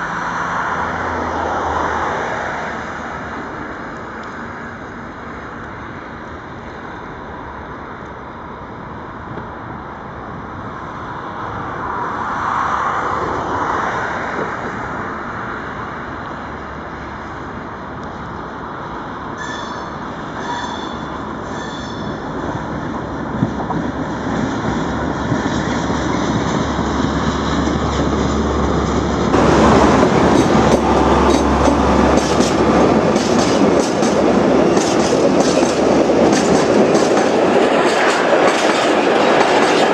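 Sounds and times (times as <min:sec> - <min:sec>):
diesel locomotive engine under load: 0:14.5 - 0:39.9
train wagons rolling: 0:19.3 - 0:39.9
high wheel squeals: 0:19.4 - 0:22.9.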